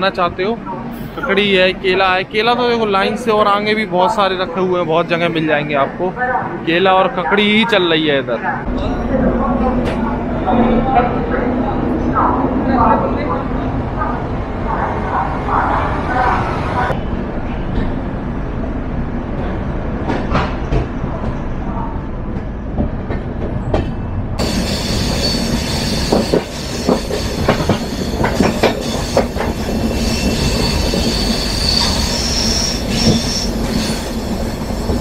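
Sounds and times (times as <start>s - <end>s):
train rumble on rails: 0.0s - 35.0s
high-pitched wheel squeal: 24.4s - 35.0s.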